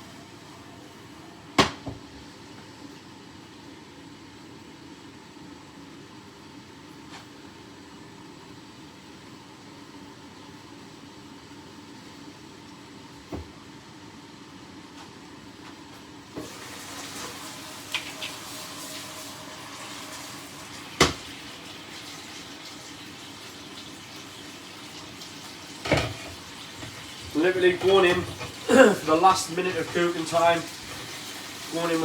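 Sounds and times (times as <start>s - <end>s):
chicken sizzling in a frying pan: 16.2s - 32.0s.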